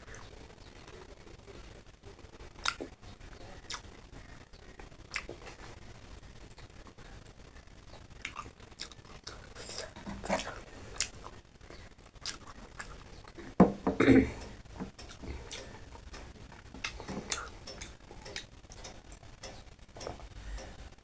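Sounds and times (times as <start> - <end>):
person chewing food: 0.0 - 20.9
mouth clicks: 2.6 - 4.4, 5.1 - 5.6, 8.2 - 20.8.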